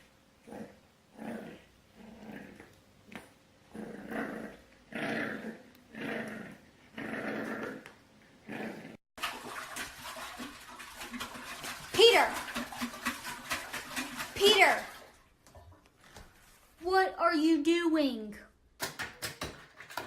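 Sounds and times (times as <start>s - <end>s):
dog growling: 0.4s - 2.8s, 3.7s - 9.0s.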